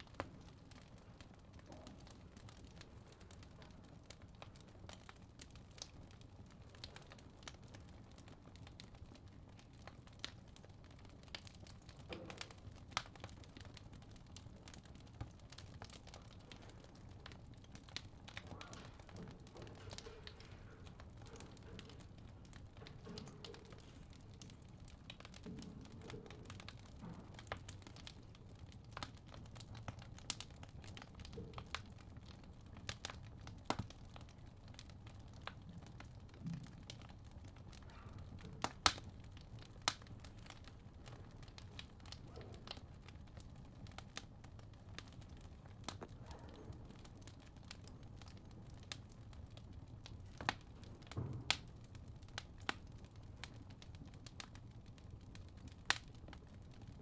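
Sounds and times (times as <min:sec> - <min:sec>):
fire crackling in fireplace: 0:00.0 - 0:57.0.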